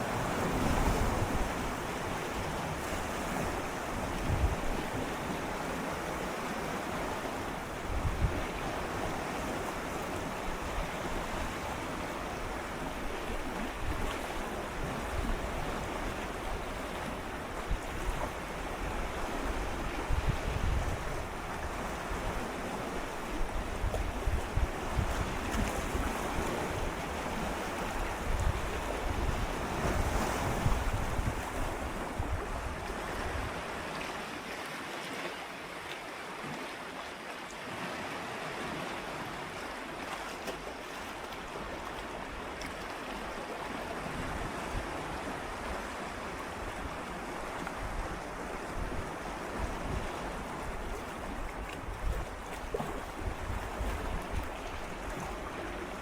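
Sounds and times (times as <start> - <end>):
sea waves lapping against rocks: 0.0 - 56.0.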